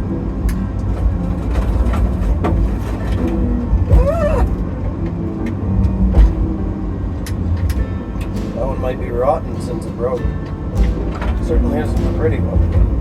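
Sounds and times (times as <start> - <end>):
wavering squeal: 3.9 - 4.6
sharp knocks and clacks: 7.2 - 13.0.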